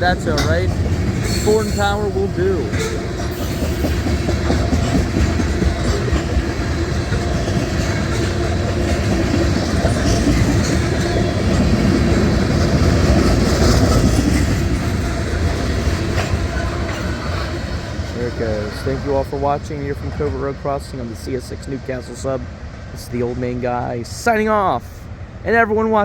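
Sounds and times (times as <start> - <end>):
wheels clicking over rail joints: 0.0 - 20.4
freight train rolling past: 0.0 - 26.0.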